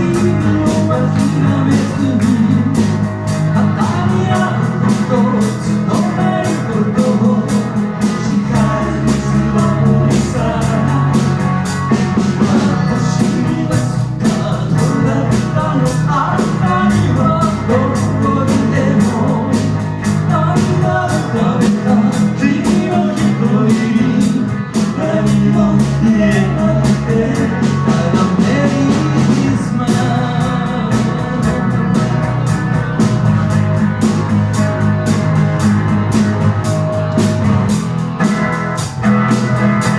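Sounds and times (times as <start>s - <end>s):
bass: 0.0s - 39.9s
electric guitar: 0.0s - 39.9s
steady drum beat: 0.0s - 39.9s.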